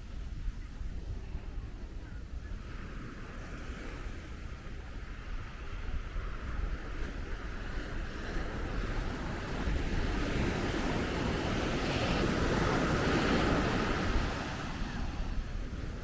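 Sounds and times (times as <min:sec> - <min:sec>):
wind noise on microphone: 0:00.0 - 0:16.0
waves breaking on beach: 0:06.2 - 0:16.0.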